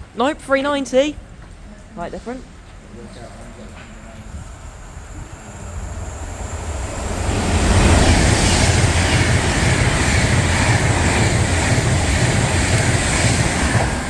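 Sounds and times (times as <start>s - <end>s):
electric train passing at speed: 3.7s - 14.0s.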